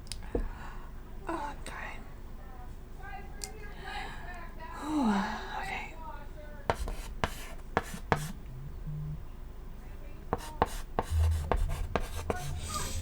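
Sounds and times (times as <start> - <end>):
chalk tapping on a chalkboard: 6.7 - 8.4, 10.3 - 13.0.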